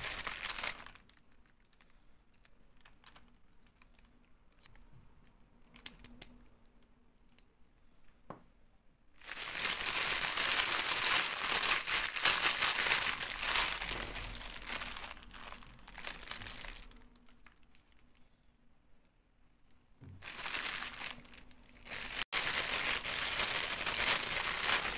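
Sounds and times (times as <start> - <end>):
plastic packaging crinkling: 0.0 - 4.1, 9.2 - 18.2, 20.2 - 24.9.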